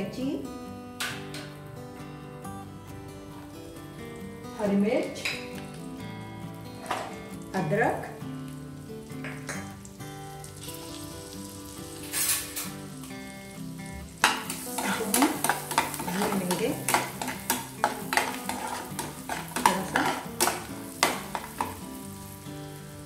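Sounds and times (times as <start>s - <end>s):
spices sizzling in hot oil: 3.3s - 23.0s
metal spatula scraping a pan: 11.9s - 12.9s, 14.2s - 22.3s.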